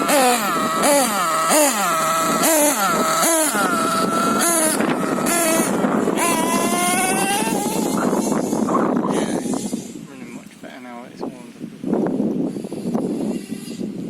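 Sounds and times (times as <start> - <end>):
rc nitro engine revving: 0.0 - 10.1, 12.1 - 14.0.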